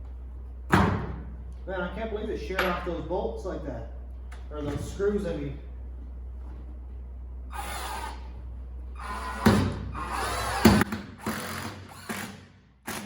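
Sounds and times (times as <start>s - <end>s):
power drill whirring: 7.5s - 8.3s, 9.0s - 13.0s.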